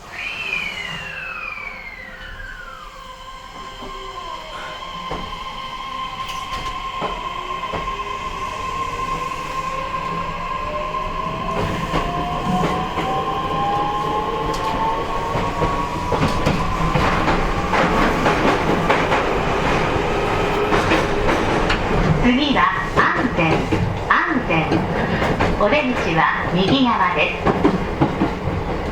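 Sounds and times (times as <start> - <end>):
train motor whine rising: 0.0 - 21.8
wheel and rail noise: 0.0 - 28.9.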